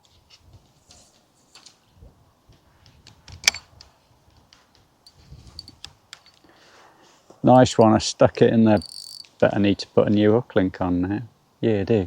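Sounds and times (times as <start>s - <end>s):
fishing tackle clicking: 8.8s - 9.3s.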